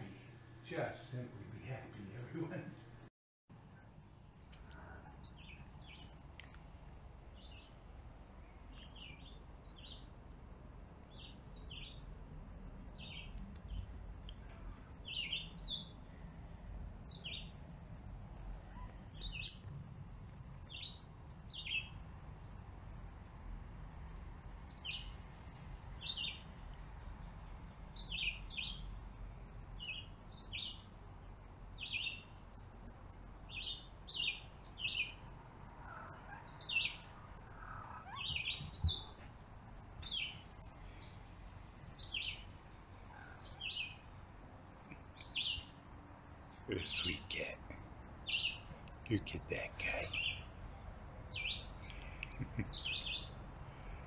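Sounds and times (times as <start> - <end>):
small birds chirping: 0.0 - 12.1, 12.8 - 22.7, 24.5 - 54.0
buzzy bird trill: 31.8 - 39.1.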